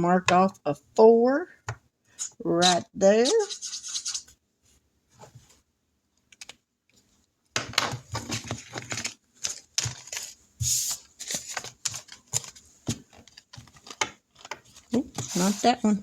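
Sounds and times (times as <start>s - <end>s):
paper rustling and clicking: 7.8s - 10.4s, 11.2s - 15.6s.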